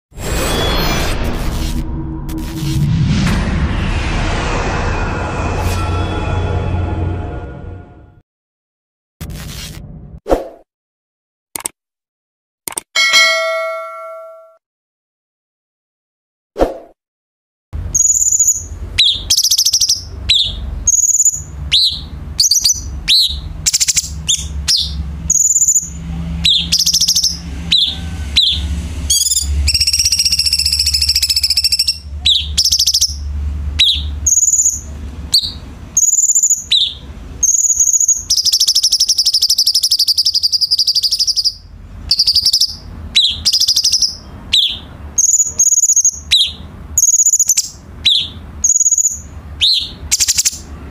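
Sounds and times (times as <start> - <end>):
low hum: 0.2 - 8.2, 20.0 - 38.3
bird chirping and trilling: 13.0 - 14.5, 17.8 - 50.7.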